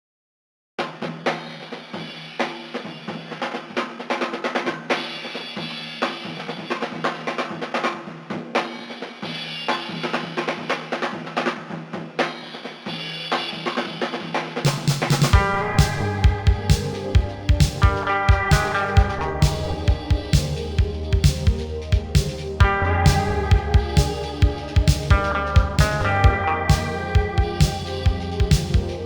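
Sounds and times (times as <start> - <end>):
drum kit playing busy beat: 13.1 - 29.0
full band with bass: 15.4 - 29.0.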